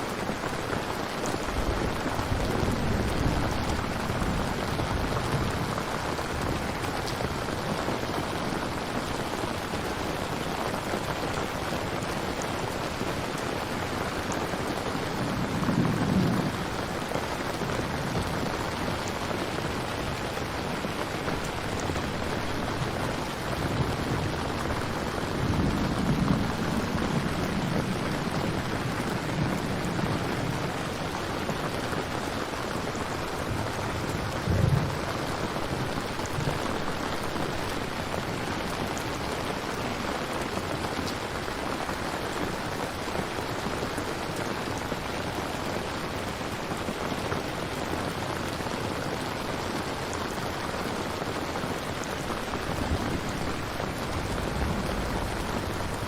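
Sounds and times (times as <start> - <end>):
heavy rain falling: 0.0 - 56.0
thunder rumbling: 1.3 - 7.5, 14.4 - 39.7, 52.2 - 56.0.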